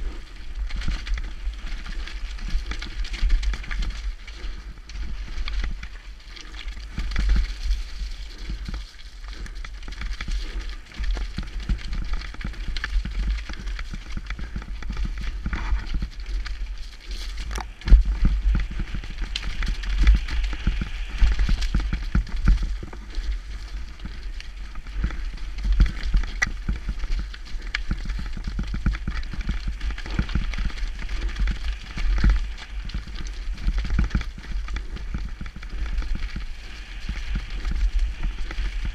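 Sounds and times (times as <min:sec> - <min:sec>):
bike tyres on dirt and rock: 0:00.0 - 0:38.9
wind rumbling on microphone: 0:00.0 - 0:38.9.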